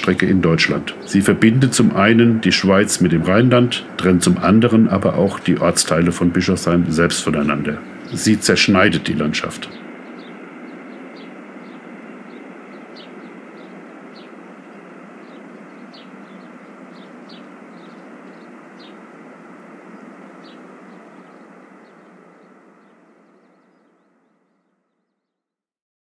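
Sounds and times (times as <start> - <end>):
train running on the line: 0.0 - 23.6.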